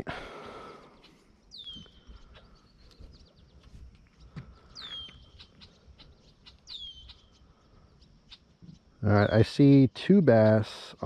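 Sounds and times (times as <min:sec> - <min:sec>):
bird whistling call: 0:01.5 - 0:02.1, 0:04.7 - 0:05.7, 0:06.6 - 0:07.3.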